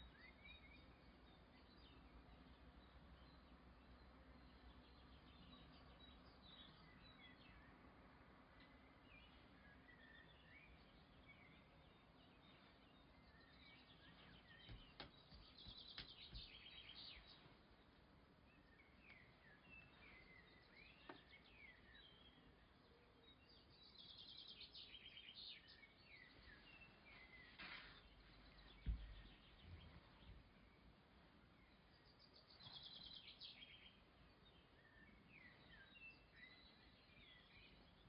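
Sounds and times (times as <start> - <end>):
faint birds chirping: 0.0 - 38.0
low thump: 28.8 - 29.3.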